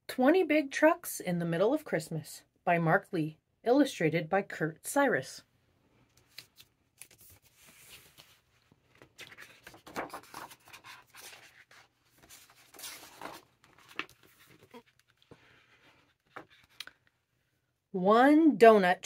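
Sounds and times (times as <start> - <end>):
book pages rustling and turning: 6.0 - 17.1.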